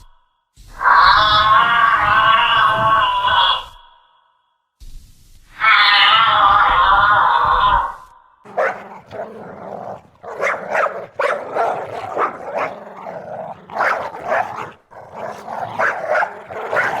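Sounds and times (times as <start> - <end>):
dog barking: 8.5 - 17.0.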